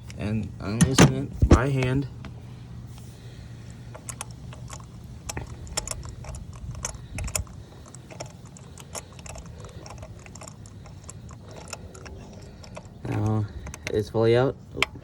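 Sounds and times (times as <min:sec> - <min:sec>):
metallic socket clicks: 0:03.9 - 0:14.0.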